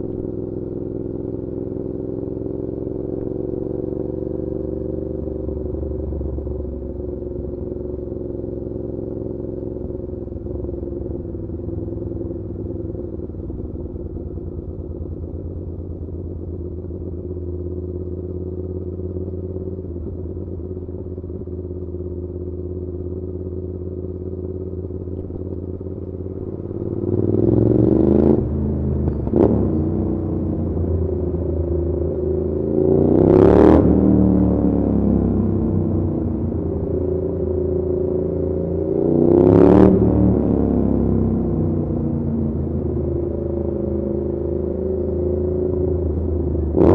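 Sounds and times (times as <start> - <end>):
motorcycle engine revving: 23.6 - 46.9.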